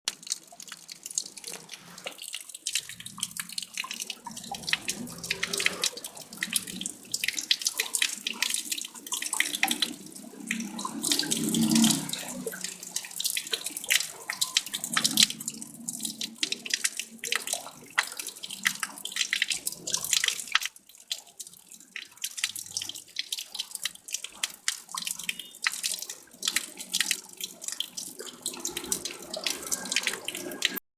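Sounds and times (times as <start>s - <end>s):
water splashing and trickling: 0.0s - 30.8s.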